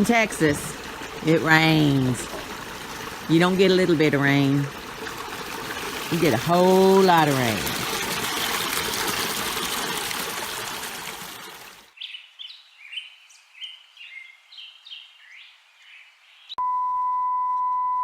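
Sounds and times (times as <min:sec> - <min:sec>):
creek water rushing: 0:00.0 - 0:11.9
birds chirping: 0:11.9 - 0:16.6.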